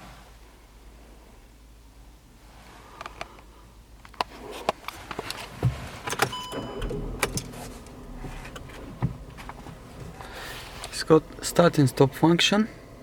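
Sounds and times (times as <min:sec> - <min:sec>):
clicks of car interior controls: 0:05.1 - 0:11.0
short electronic beep: 0:06.3 - 0:07.1.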